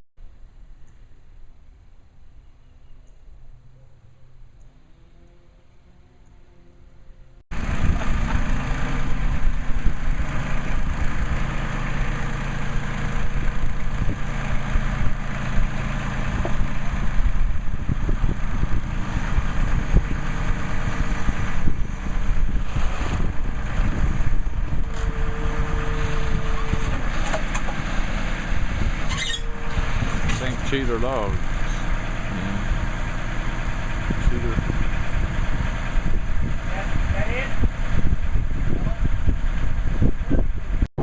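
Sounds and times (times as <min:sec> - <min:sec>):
vehicle engine running: 0:03.4 - 0:40.9.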